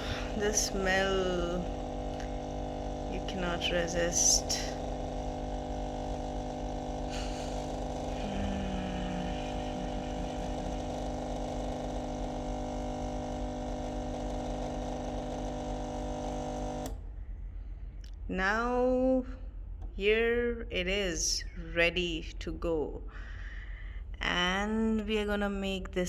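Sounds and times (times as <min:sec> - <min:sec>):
coffee machine pump humming: 0:00.0 - 0:17.0.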